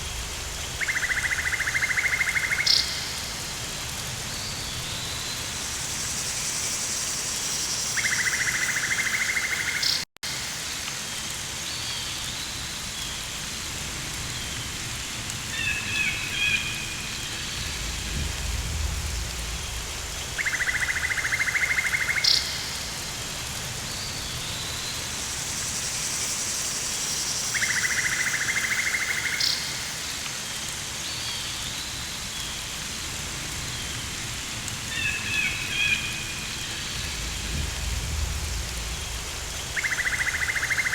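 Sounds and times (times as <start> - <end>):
rain hissing: 0.0 - 40.9
low rumble: 17.4 - 20.4, 36.7 - 39.9.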